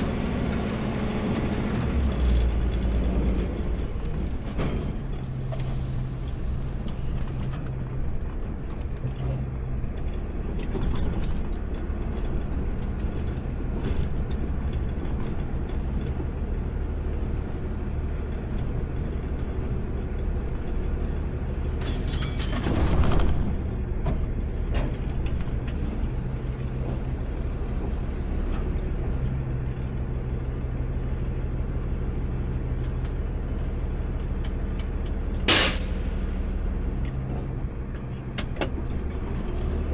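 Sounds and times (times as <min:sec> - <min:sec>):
diesel engine running: 0:23.6 - 0:39.9
brief rush of noise: 0:35.5 - 0:36.4.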